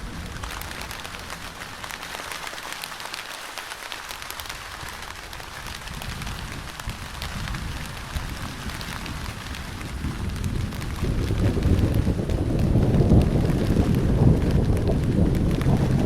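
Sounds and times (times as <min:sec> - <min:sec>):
rain falling: 0:00.0 - 0:16.0
raindrops clicking on surface: 0:00.0 - 0:16.0.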